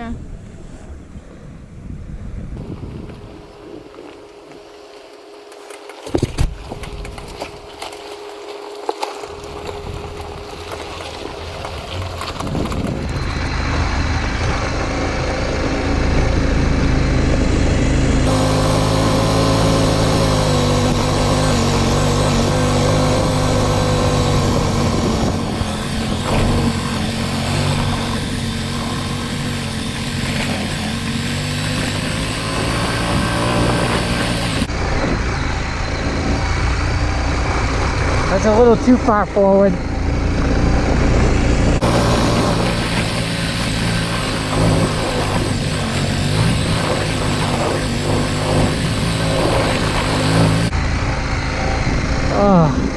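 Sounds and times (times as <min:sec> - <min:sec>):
off-road vehicle engines running: 0:00.0 - 0:52.9.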